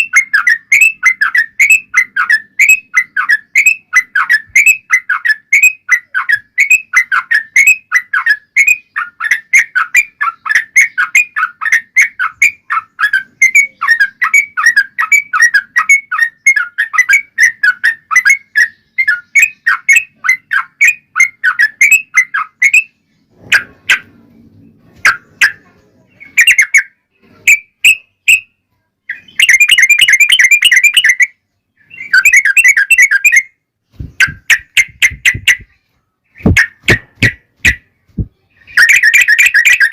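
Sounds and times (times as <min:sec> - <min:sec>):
bulbul singing chattering notes: 0:29.1 - 0:39.9.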